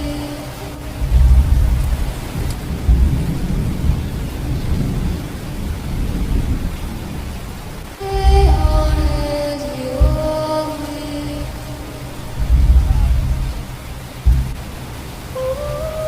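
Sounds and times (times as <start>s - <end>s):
steady rain: 0.0s - 16.0s
thunder rumbling: 0.0s - 16.0s.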